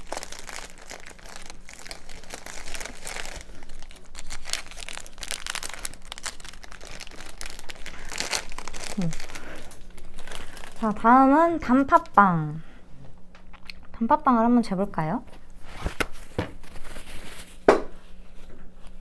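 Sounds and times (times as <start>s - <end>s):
plastic wrapper crinkling: 0.0s - 12.2s.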